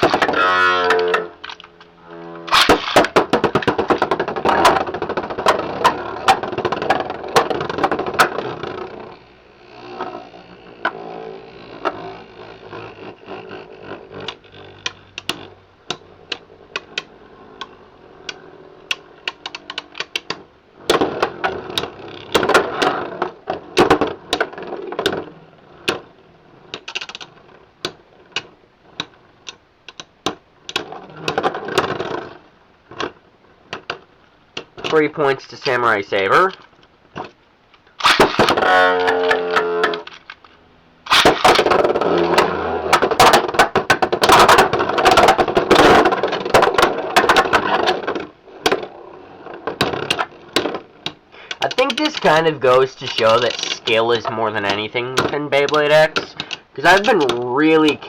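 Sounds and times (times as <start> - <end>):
dense rattling of spinning tops: 0.0 - 9.2, 48.8 - 58.0
spinning tops clacking together: 2.5 - 4.9, 38.0 - 40.5, 51.5 - 58.0.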